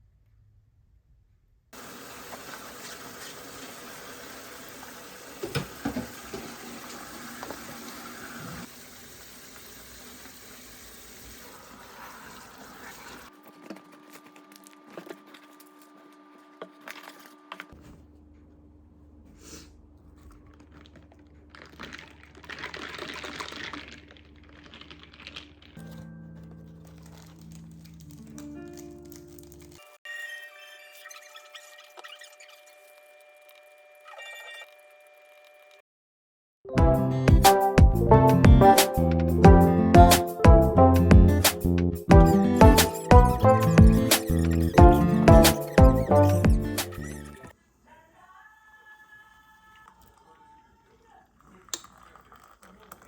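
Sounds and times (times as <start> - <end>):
water running from tap: 1.8 - 13.3, 51.7 - 53.0.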